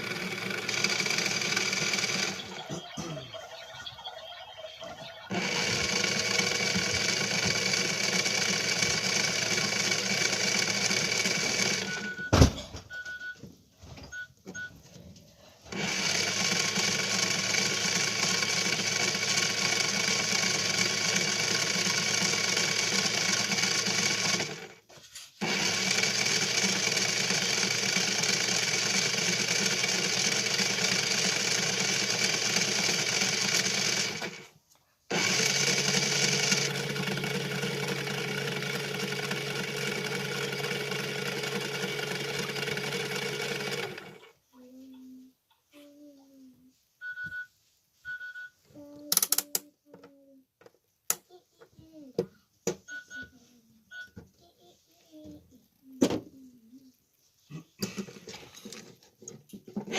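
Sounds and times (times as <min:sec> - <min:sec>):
washing machine running: 0:00.0 - 0:12.6, 0:15.7 - 0:24.8, 0:25.4 - 0:34.5, 0:35.1 - 0:44.3.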